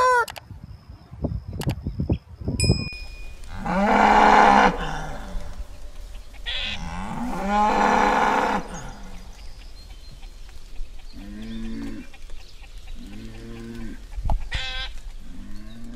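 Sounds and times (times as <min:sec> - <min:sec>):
cow mooing: 0:03.2 - 0:09.6.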